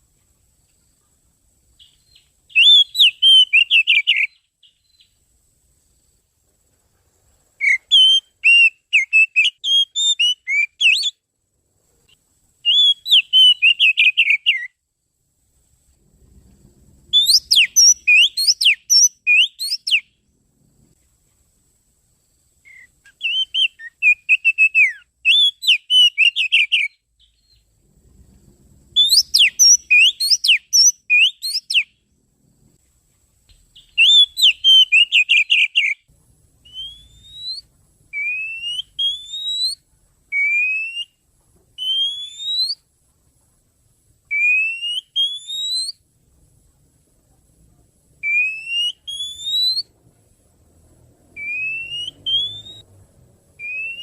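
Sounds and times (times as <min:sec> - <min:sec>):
bird chattering song: 0:01.8 - 0:05.2, 0:12.7 - 0:14.7, 0:17.1 - 0:20.1, 0:29.0 - 0:32.0, 0:33.8 - 0:39.8, 0:51.4 - 0:52.8
rising bird whistles: 0:01.8 - 0:05.2, 0:07.6 - 0:11.2, 0:12.6 - 0:14.8, 0:17.1 - 0:20.2, 0:22.6 - 0:27.7, 0:28.9 - 0:32.0, 0:33.8 - 0:41.2, 0:41.8 - 0:42.8, 0:44.3 - 0:46.0, 0:48.2 - 0:49.9, 0:51.4 - 0:52.9, 0:53.6 - 0:54.0.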